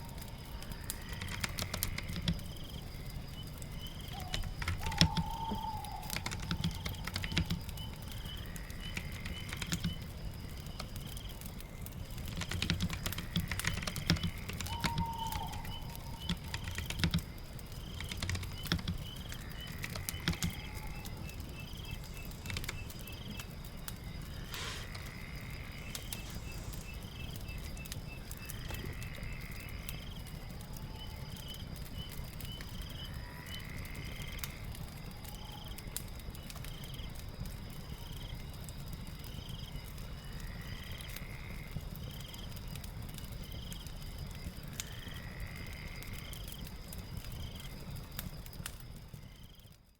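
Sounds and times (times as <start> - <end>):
fire crackling: 0.0 - 49.9
rain: 0.0 - 49.9
computer keyboard typing: 4.2 - 7.8, 8.9 - 10.0, 12.2 - 21.0, 21.6 - 23.4.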